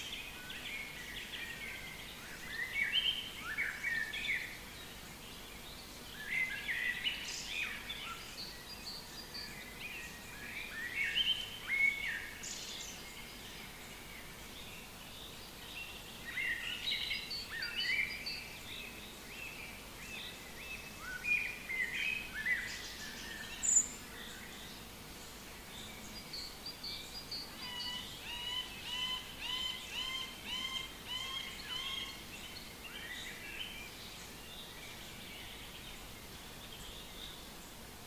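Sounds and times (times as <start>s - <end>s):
birds chirping and warbling: 0.0s - 37.8s
faint background hiss: 0.0s - 38.0s.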